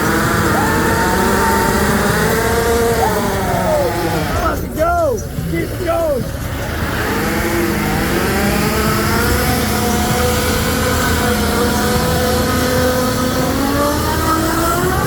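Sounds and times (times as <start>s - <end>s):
engine revving high: 0.0s - 15.0s.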